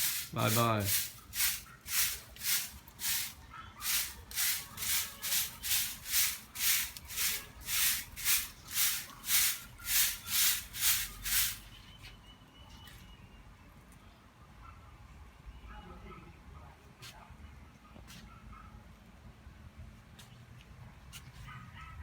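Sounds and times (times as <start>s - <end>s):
broom sweeping: 0.0s - 11.7s.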